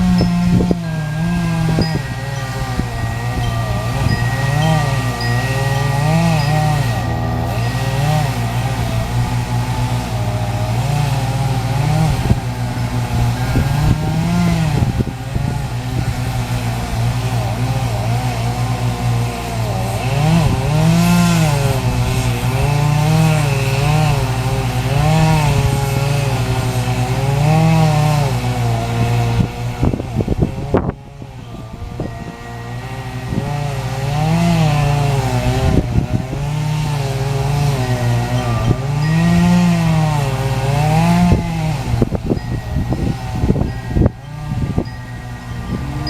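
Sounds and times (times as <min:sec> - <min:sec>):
chainsaw cutting wood: 0:00.0 - 0:46.0.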